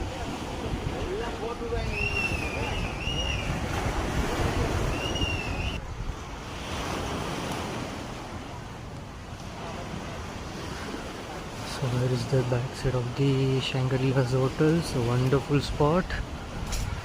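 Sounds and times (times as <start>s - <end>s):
wind buffeting microphone: 0.0s - 13.2s, 13.8s - 17.0s
surf washing onto beach: 0.0s - 17.0s
wavering whistle: 1.8s - 3.7s, 4.9s - 5.8s.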